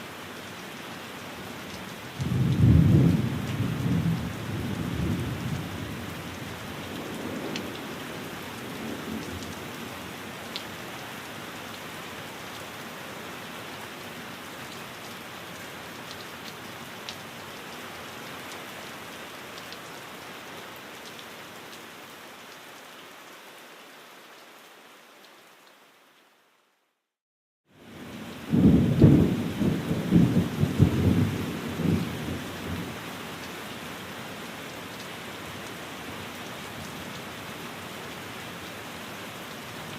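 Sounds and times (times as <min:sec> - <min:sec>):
steady rain hiss: 0:00.0 - 0:27.1, 0:27.7 - 0:39.9
low rolls of thunder: 0:02.2 - 0:06.1, 0:28.5 - 0:32.9.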